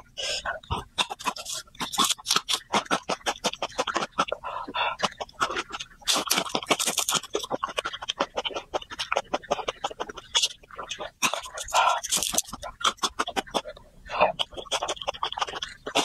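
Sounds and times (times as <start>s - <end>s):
noisy breath: 0.0s - 0.7s, 4.4s - 5.1s, 11.6s - 12.3s
crunchy chewing: 0.2s - 16.0s.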